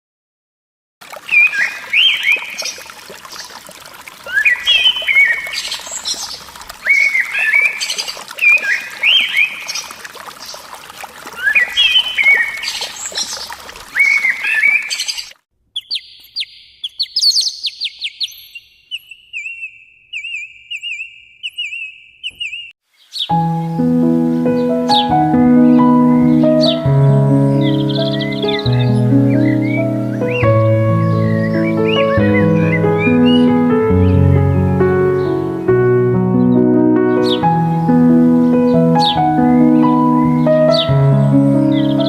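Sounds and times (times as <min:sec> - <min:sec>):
bird calls: 0:01.2 - 0:03.6, 0:04.2 - 0:10.7, 0:11.3 - 0:34.2, 0:36.4 - 0:42.0
background noise: 0:15.5 - 0:23.3.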